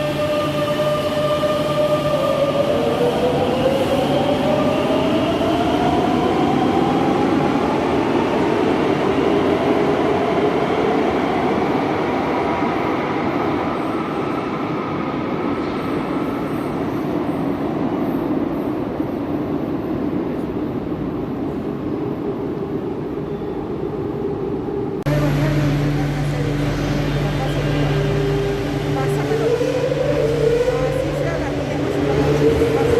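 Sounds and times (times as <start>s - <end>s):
wheels rumbling on rail: 24.6s - 32.9s
train traction motor whine: 25.1s - 32.9s.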